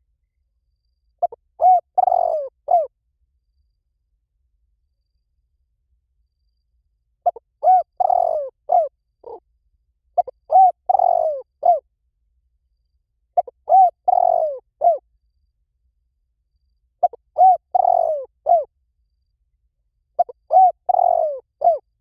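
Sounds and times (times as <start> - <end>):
dove cooing: 1.2 - 2.9, 7.2 - 9.4, 10.2 - 11.8, 13.4 - 15.0, 17.0 - 18.7, 20.2 - 21.9.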